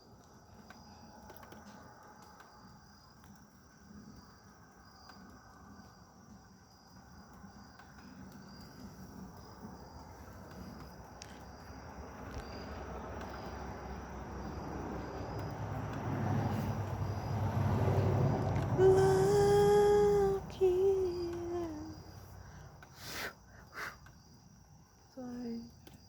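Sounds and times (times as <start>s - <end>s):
crickets chirping: 0.0s - 26.0s
vehicle passing rumble: 8.2s - 22.8s.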